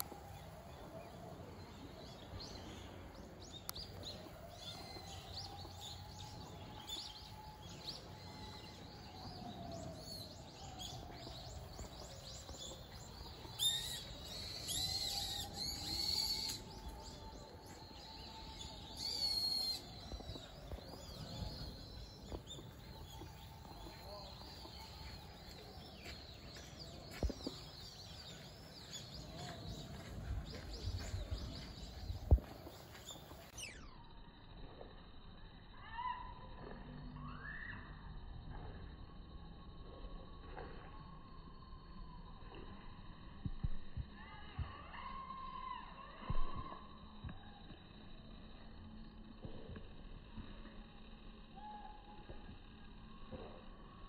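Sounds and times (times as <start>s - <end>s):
small birds chirping: 0.0s - 34.1s.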